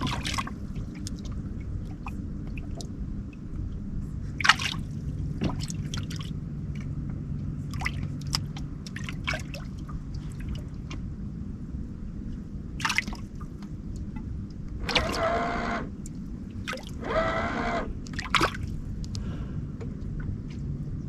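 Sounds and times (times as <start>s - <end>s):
low steady hum: 0.0s - 21.0s
water lapping and dripping: 0.0s - 21.0s
short clicks and splashes: 4.4s - 6.9s, 7.7s - 11.1s, 12.8s - 19.3s.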